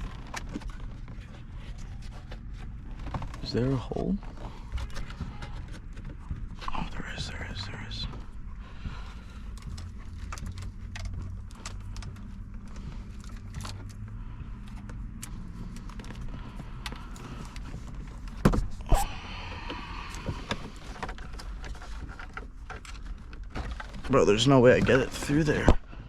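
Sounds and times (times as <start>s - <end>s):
steady low hum: 0.0s - 23.4s
wire rustling through plastic trim: 8.4s - 18.9s.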